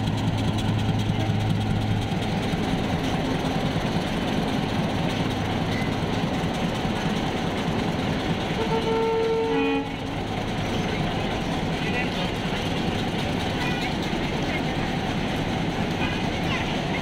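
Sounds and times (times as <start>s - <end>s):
diesel locomotive engine running: 0.0s - 17.0s
train wheels rumbling on rails: 0.0s - 17.0s
train horn: 8.5s - 10.0s.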